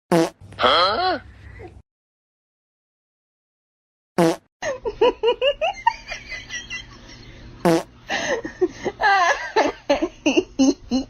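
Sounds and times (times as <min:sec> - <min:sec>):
person laughing: 0:08.1 - 0:11.0.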